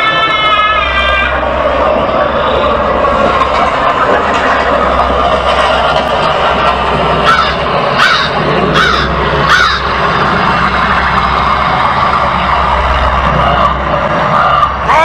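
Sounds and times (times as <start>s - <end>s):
loud background drone: 0.0s - 15.0s
crow cawing: 7.2s - 9.9s.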